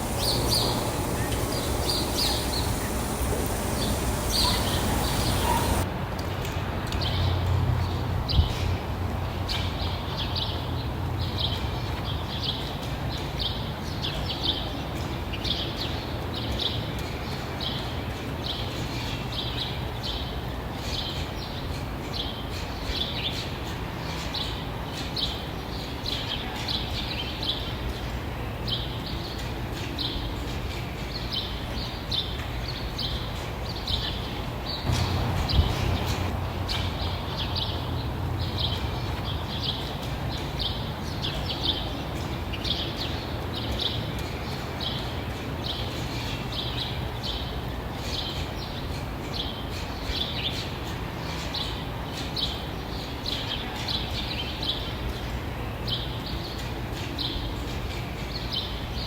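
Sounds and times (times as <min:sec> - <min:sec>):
birds chirping: 0:00.0 - 0:05.8, 0:34.9 - 0:38.8
steady low rumble: 0:34.9 - 0:38.6.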